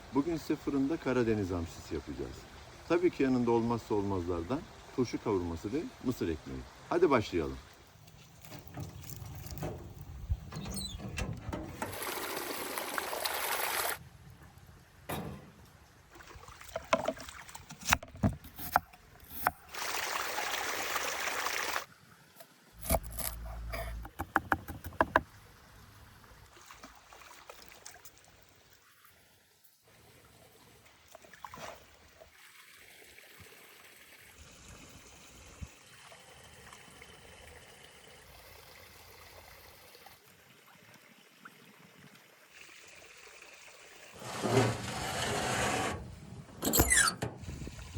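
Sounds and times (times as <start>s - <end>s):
water running and trickling: 0.1s - 14.0s, 25.2s - 45.3s
knocks and clicks of food preparation: 23.8s - 25.3s.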